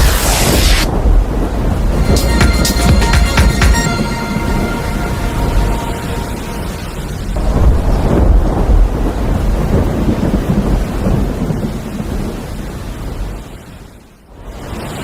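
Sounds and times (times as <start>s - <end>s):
loud low rumbling: 4.0s - 10.5s.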